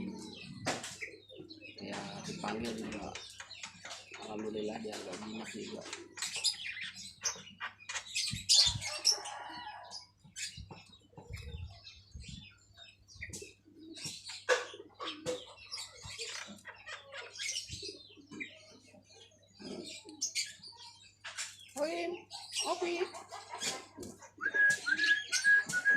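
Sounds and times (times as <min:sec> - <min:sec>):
bird chirps and clicks: 0:00.0 - 0:09.2, 0:10.2 - 0:25.9.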